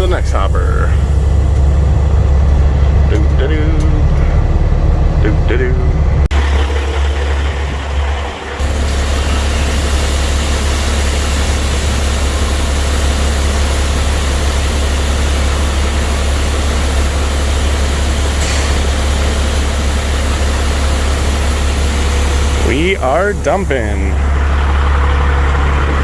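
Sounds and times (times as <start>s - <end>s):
diesel truck engine idling: 0.0s - 26.0s
grain rushing from hopper: 6.4s - 26.0s.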